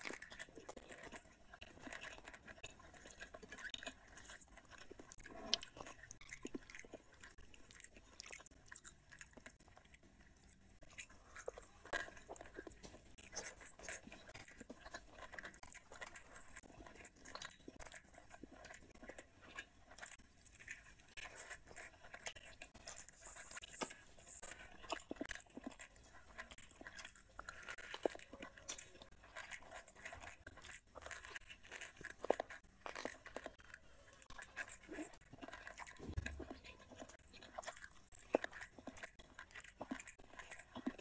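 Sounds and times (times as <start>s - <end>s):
person chewing food: 0.0s - 41.0s.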